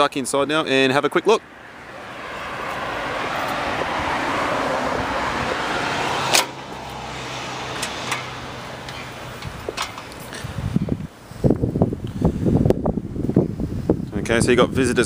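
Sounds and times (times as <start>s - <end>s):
car passing: 0.5s - 11.4s.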